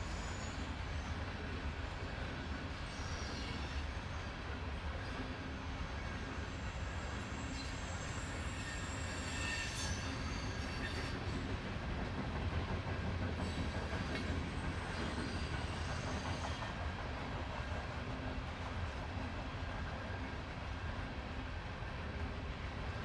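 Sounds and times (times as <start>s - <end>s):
faint high wheel squeals: 0.0s - 1.5s, 2.7s - 11.6s, 13.4s - 16.8s
freight train wheels rumbling: 0.0s - 23.0s.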